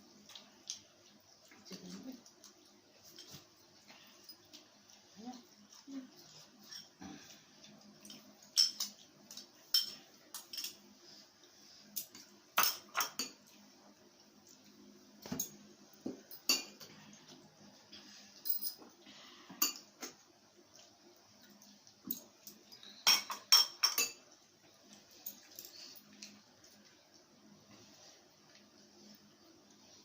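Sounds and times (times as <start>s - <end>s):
cutlery clinking on plates: 8.0s - 10.8s, 12.0s - 13.5s, 15.2s - 16.9s, 22.0s - 24.3s.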